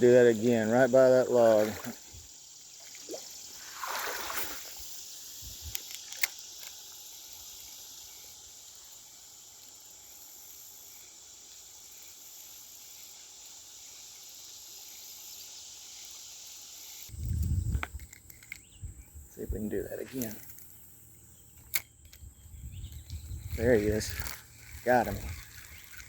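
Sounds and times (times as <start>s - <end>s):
insect chorus: 0.0s - 26.0s
sharp clicks: 5.7s - 6.8s.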